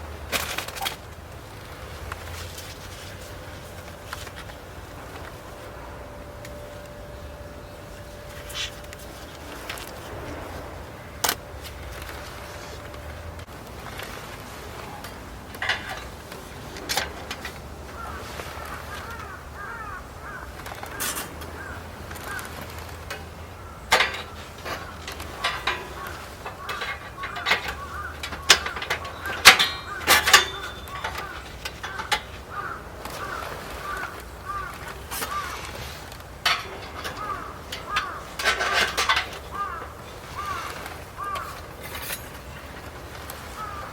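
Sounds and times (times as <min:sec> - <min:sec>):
crows cawing: 0:17.9 - 0:22.8, 0:23.5 - 0:41.8, 0:43.4 - 0:43.9.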